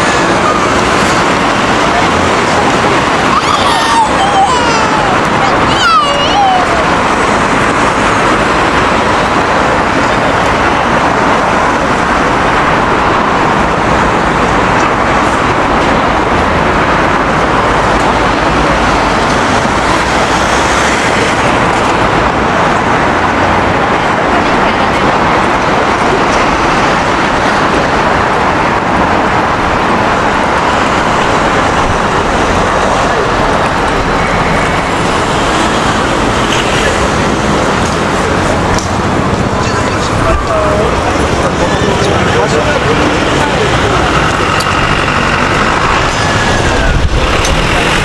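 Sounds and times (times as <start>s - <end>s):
road traffic noise: 0.0s - 48.0s.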